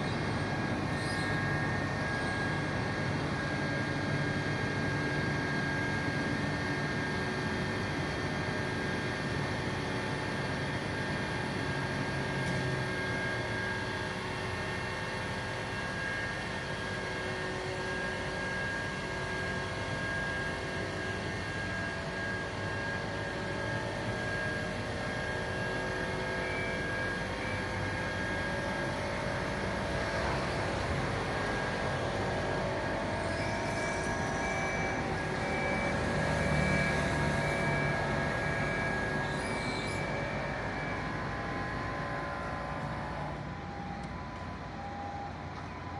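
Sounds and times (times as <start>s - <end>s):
machinery drone with whining tones: 0.0s - 45.9s.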